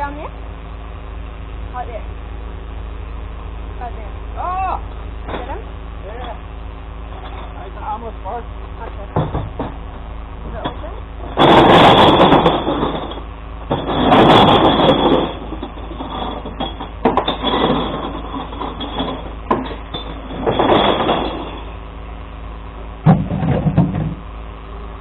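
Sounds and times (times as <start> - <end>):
truck engine running: 0.0 - 25.0
loud noisy bursts: 1.6 - 16.4
low thud: 23.0 - 24.2.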